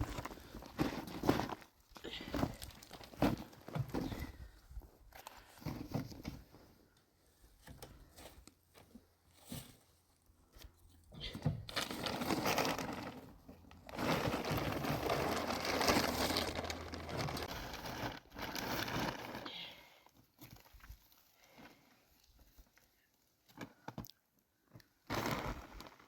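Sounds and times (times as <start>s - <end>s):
rustling and crinkling: 0.0s - 19.5s.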